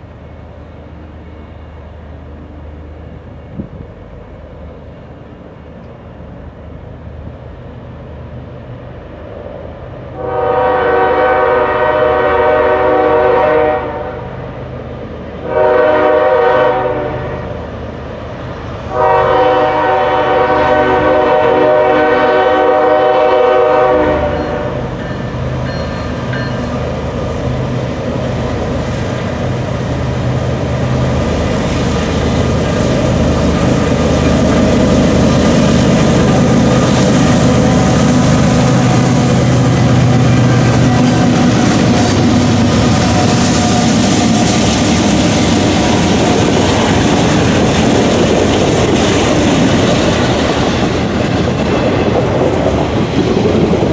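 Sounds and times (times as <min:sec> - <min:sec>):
diesel locomotives rumbling: 0:00.0 - 0:53.9
train air horn blast: 0:10.2 - 0:14.3, 0:15.4 - 0:17.5, 0:18.9 - 0:24.9.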